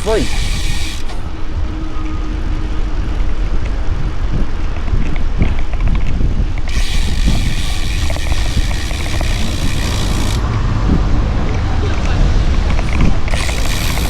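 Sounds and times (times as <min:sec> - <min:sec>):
loud steady hiss: 0:00.0 - 0:01.3
wind buffeting microphone: 0:00.0 - 0:14.0.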